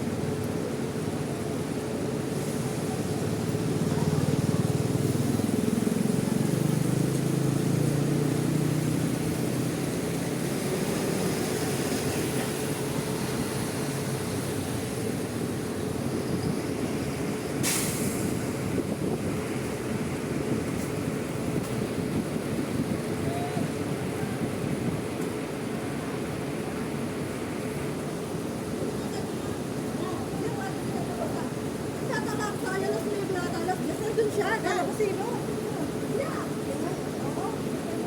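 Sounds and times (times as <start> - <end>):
bus engine running: 0.0 - 38.0
short sharp hiss: 17.6 - 18.4.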